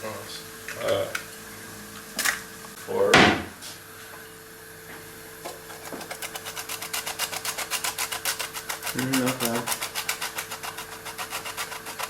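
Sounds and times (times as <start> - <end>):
steady low hum: 0.0 - 12.0
utensil clicking rapidly: 6.0 - 12.0.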